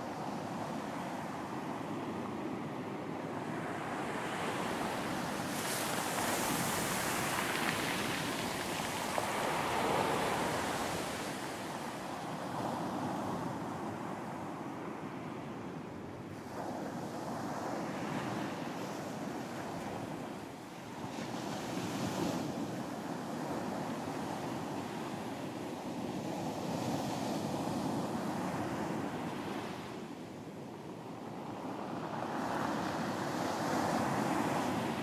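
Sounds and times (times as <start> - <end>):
waves breaking with a hiss: 4.5 - 12.6.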